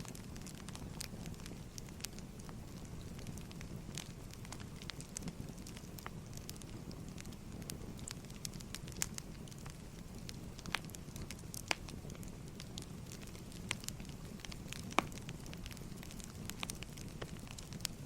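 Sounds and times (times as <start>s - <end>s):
firewood crackles and pops: 0.0s - 18.0s
low rumble of fire: 0.0s - 18.0s.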